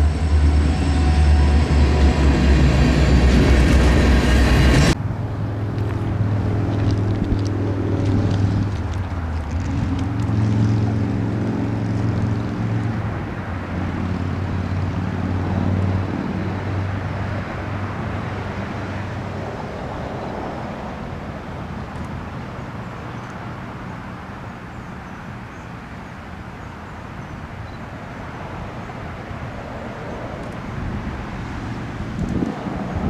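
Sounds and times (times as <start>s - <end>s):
track noise: 0.0s - 24.1s
diesel locomotives droning past: 0.0s - 33.0s
wind: 0.0s - 33.0s.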